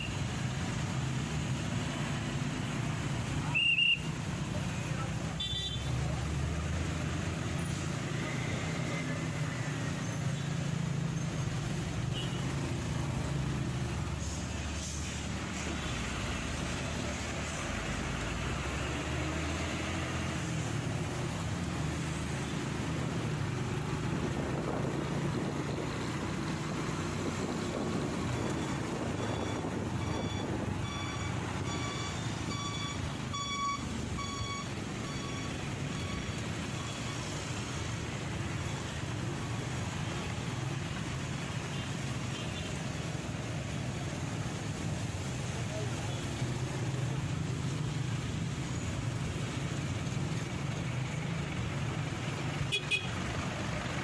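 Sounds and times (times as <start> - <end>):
road and wind noise: 0.0 - 54.0
electronic beeps: 28.4 - 37.2.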